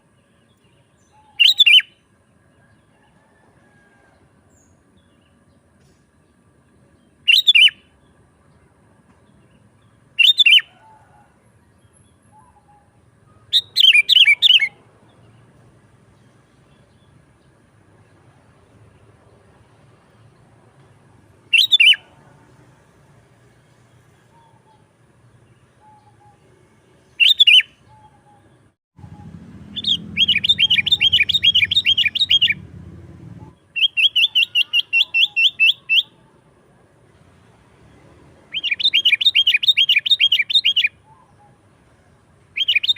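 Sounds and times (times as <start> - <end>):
bird whistling song: 0.5 - 2.0, 7.2 - 7.9, 10.2 - 11.0, 12.0 - 14.8, 21.5 - 22.1, 25.8 - 26.5, 27.2 - 28.5, 29.1 - 32.6, 33.8 - 36.2, 38.5 - 41.6, 42.6 - 42.9
bird singing high notes: 1.0 - 2.0, 29.1 - 32.6.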